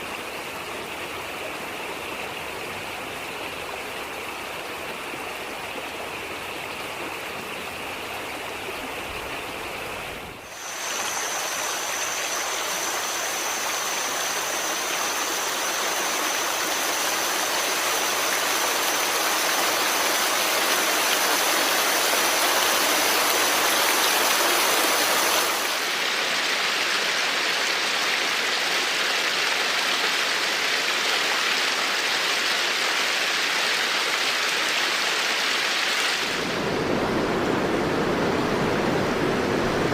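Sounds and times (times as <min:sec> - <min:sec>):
river water rushing: 0:00.0 - 0:39.9
thin high whine: 0:10.5 - 0:16.4.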